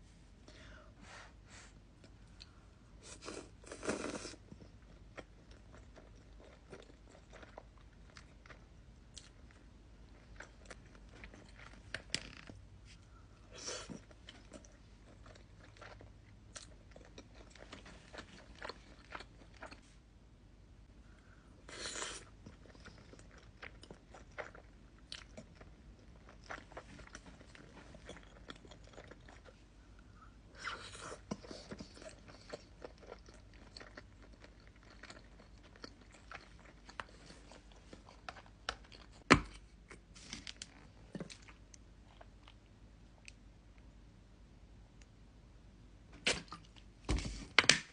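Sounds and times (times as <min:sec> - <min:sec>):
chewing food: 0:04.5 - 0:12.1, 0:13.8 - 0:19.9, 0:22.2 - 0:29.7, 0:30.6 - 0:39.3.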